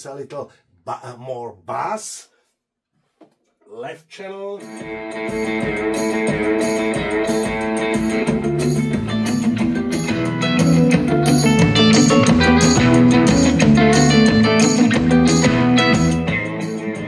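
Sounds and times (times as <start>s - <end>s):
guitar music from loudspeaker: 4.6s - 17.0s
bass notes: 4.7s - 17.0s.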